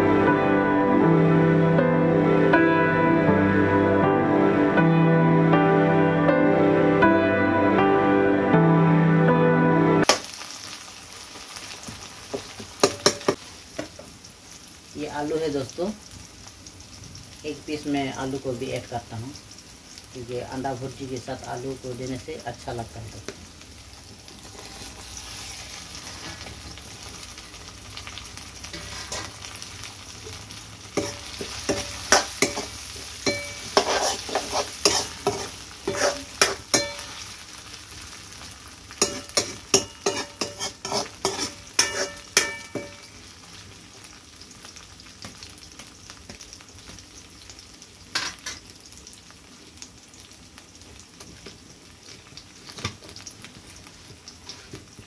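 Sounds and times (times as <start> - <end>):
potatoes and onion sizzling: 10.0 - 55.0
metal spatula knocking a wok: 12.8 - 13.9, 31.0 - 32.7, 33.3 - 37.2, 39.0 - 43.1.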